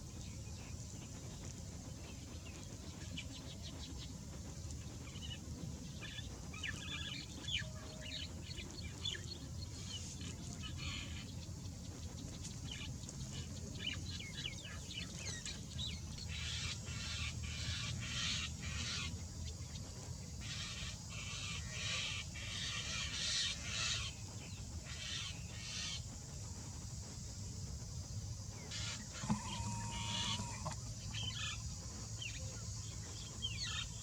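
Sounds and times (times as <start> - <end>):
birds chirping: 28.4 - 34.0
birds squawking: 28.7 - 31.4.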